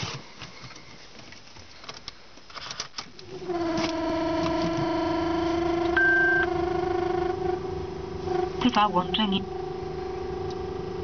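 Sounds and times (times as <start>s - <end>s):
starter motor cranking: 3.2s - 8.6s.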